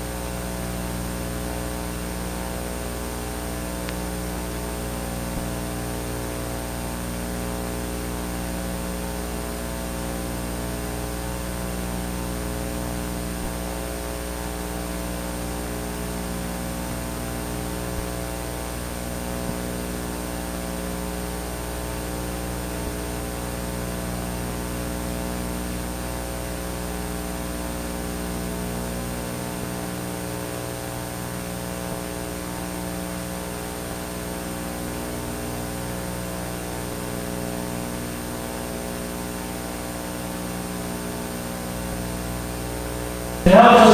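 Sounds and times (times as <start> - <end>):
electrical mains hum: 43.4 - 43.9.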